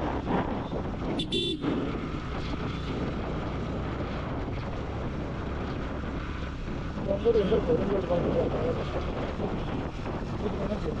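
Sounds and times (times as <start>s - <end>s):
motorcycle engine and road rumble: 0.0s - 11.0s
wind buffeting microphone: 0.0s - 11.0s.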